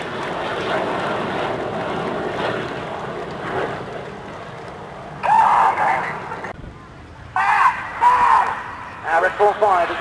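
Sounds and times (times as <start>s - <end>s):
jet roar: 0.0s - 10.0s.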